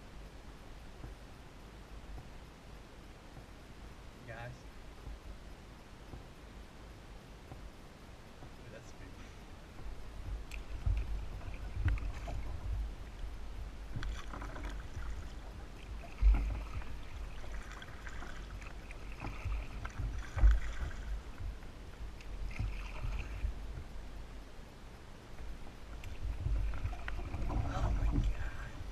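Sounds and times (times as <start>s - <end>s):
wind rumble on microphone: 0.0s - 28.9s
paddle splashing in water: 9.6s - 24.2s, 25.4s - 28.9s.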